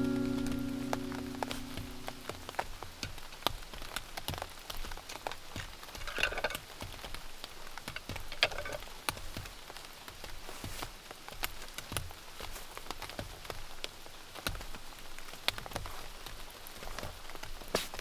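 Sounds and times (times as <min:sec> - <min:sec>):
steady rain hiss: 0:00.0 - 0:02.6
rain drops pattering: 0:00.0 - 0:17.7.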